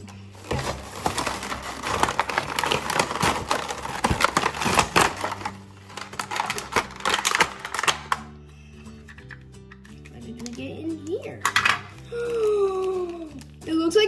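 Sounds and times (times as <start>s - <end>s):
plastic and cardboard packaging crackling: 0.0s - 8.3s, 10.3s - 13.9s.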